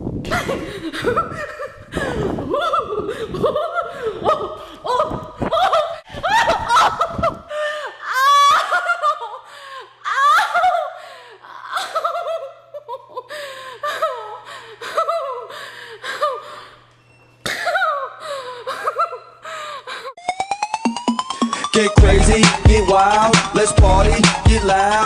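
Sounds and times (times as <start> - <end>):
person laughing and gasping: 0.3 - 16.7, 17.6 - 20.2
music intro with sweeping tones: 20.2 - 25.0.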